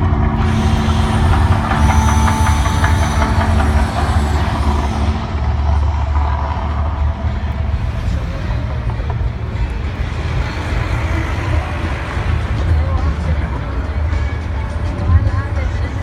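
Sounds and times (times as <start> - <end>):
faint high tones: 0.0 - 9.3
deep rumble of eruption effects: 0.0 - 16.0.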